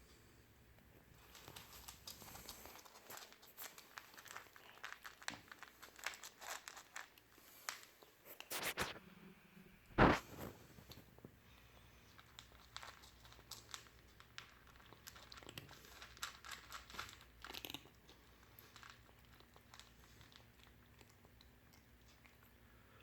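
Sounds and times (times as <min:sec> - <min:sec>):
cat crunching dry food: 0:01.2 - 0:08.9, 0:12.0 - 0:22.7.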